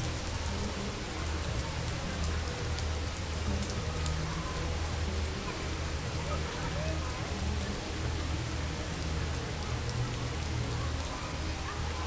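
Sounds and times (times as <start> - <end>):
heavy rain pouring: 0.0 - 1.4.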